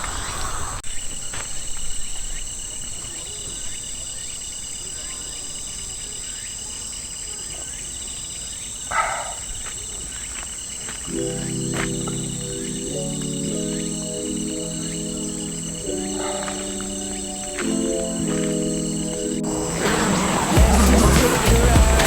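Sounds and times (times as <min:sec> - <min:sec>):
crickets trilling: 0:00.0 - 0:22.0
pulsing insect chirp: 0:00.0 - 0:22.0
music: 0:11.1 - 0:22.0.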